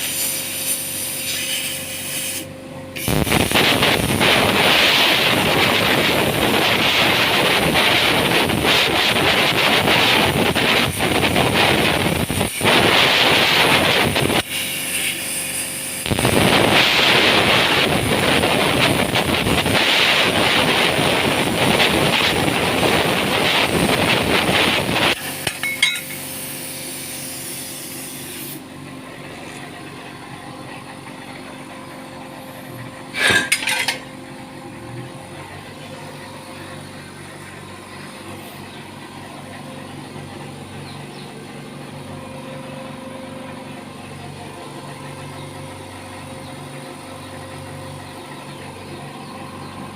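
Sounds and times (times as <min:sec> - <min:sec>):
steady hum: 0:00.0 - 0:49.9
abrasive disc grinding steel: 0:23.4 - 0:26.3, 0:33.1 - 0:34.0.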